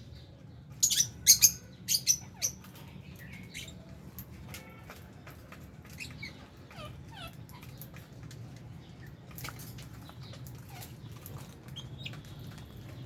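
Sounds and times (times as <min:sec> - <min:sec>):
parrots chirping: 0:00.8 - 0:03.8, 0:05.8 - 0:08.0.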